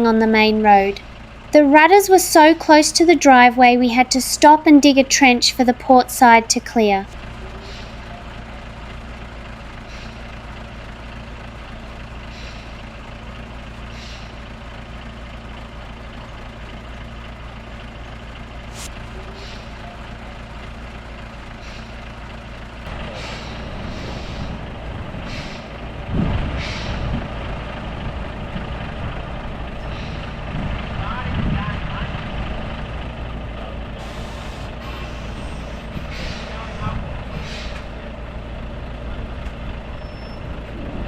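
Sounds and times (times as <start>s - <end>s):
truck diesel engine running: 0.0s - 41.0s.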